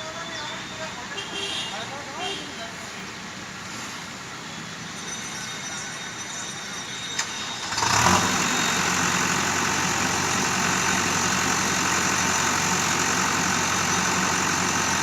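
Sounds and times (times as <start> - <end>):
diesel engine running: 7.6 - 15.0.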